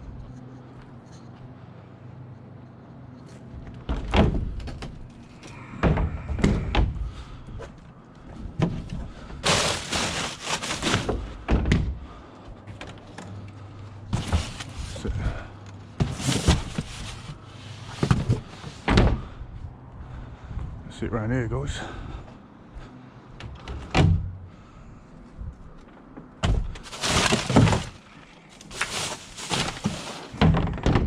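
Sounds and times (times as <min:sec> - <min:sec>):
steady low hum: 0:00.0 - 0:30.9
scrap items thumping and banging: 0:05.8 - 0:13.3, 0:14.1 - 0:15.4, 0:16.0 - 0:19.3, 0:26.4 - 0:31.0
scraping and rustling: 0:08.7 - 0:11.4, 0:14.1 - 0:15.4, 0:16.0 - 0:18.9, 0:26.8 - 0:30.6.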